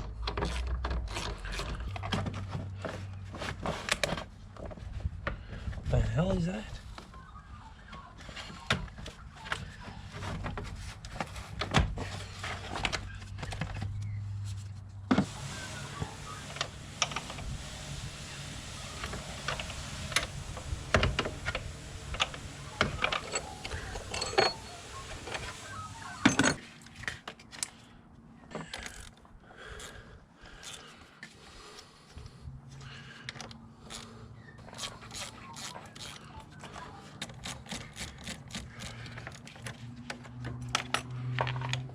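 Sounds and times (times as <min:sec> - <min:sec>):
tools clicking and rattling on parts: 0:21.0 - 0:27.8, 0:33.2 - 0:41.9.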